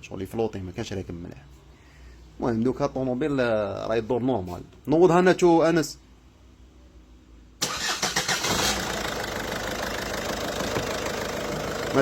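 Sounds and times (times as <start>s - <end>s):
diesel engine cranking and idling: 7.6s - 12.0s.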